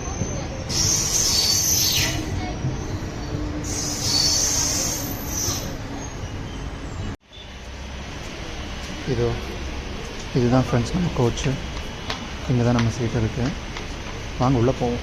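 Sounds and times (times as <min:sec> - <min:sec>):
train wheels squealing: 0:00.0 - 0:06.4
train rumbling: 0:00.0 - 0:15.0.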